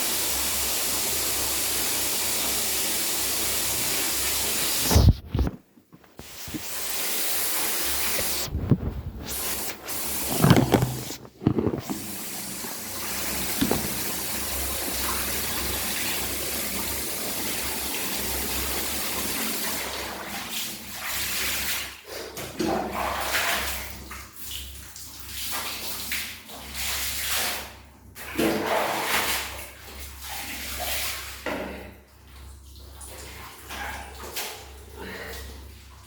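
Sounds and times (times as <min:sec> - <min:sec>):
tap water running into bath: 0:06.2 - 0:31.7
water splashing: 0:07.8 - 0:17.7.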